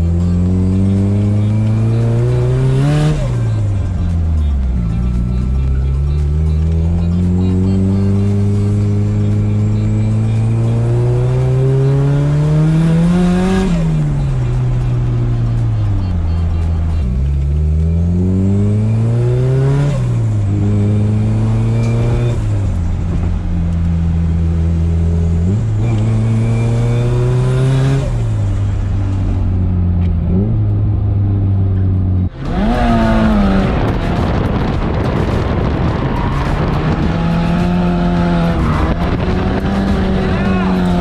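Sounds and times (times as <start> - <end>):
turbocharged car engine accelerating: 0.0 - 41.0
rough noisy engine: 31.6 - 41.0.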